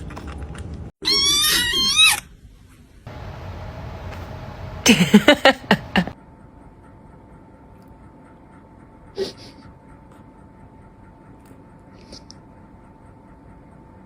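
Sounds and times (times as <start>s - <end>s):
faint steady hum: 3.1s - 14.0s.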